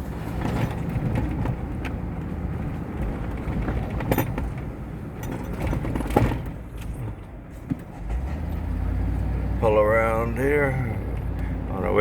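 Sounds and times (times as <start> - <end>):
car engine and road rumble: 0.0 - 12.0
knocks and rattles: 3.0 - 6.6.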